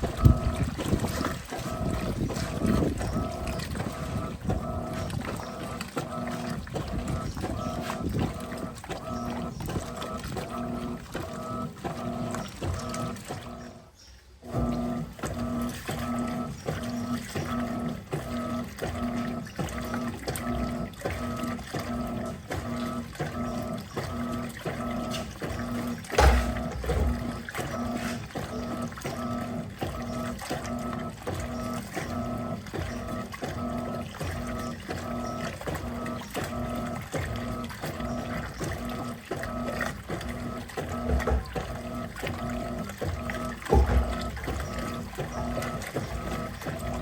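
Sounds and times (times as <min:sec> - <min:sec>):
washing machine motor humming: 0:00.0 - 0:47.0
water sloshing: 0:00.0 - 0:47.0
loud thump: 0:26.2 - 0:27.2.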